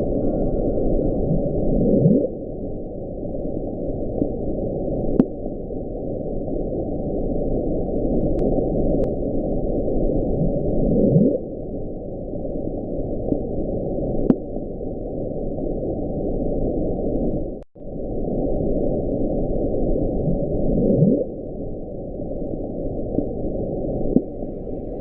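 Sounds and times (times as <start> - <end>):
deep rumbling ocean hiss: 0.0 - 25.0.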